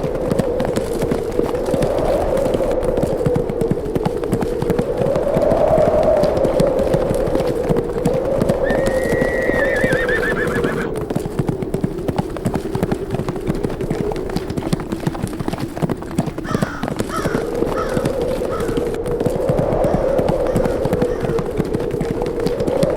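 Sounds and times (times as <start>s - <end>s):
horse hoofbeats galloping: 0.0s - 22.9s
wind howling: 0.0s - 22.9s
horse whinnying: 8.6s - 11.0s.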